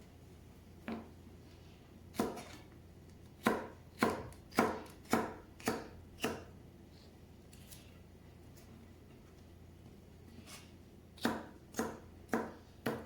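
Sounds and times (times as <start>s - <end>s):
knife chopping on cutting board: 2.1s - 2.6s, 3.4s - 6.5s, 11.2s - 13.0s.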